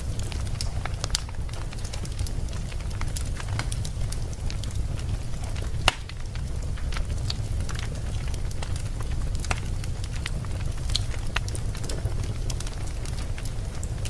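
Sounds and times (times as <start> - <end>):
fire crackling: 0.0 - 14.0
fire rumbling: 0.0 - 14.0
sharp pop of fire: 5.8 - 6.2.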